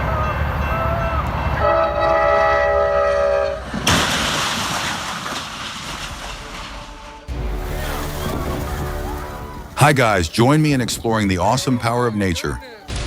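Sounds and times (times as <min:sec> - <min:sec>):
loud rushing blast: 0:03.8 - 0:11.0
low rumble: 0:06.1 - 0:11.0
horn chord: 0:06.9 - 0:10.4.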